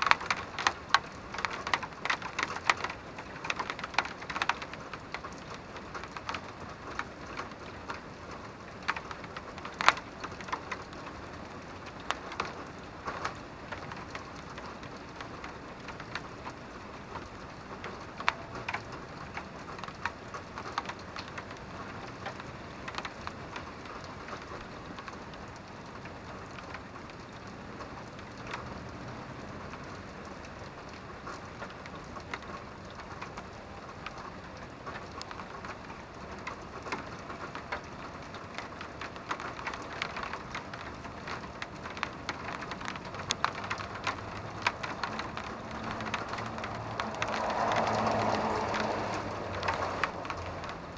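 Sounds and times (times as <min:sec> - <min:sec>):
raindrops tapping close: 0:00.0 - 0:50.9
steady rain patter: 0:00.0 - 0:50.9.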